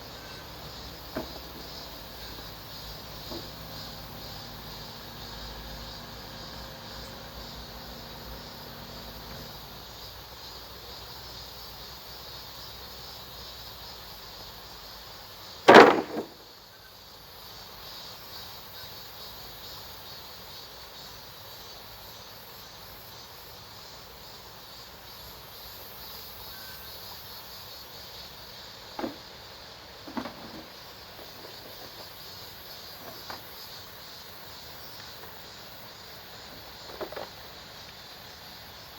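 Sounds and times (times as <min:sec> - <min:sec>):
faint knocks: 0:00.8 - 0:02.5, 0:03.2 - 0:03.7, 0:29.0 - 0:29.2
loud short bang: 0:15.7 - 0:16.4.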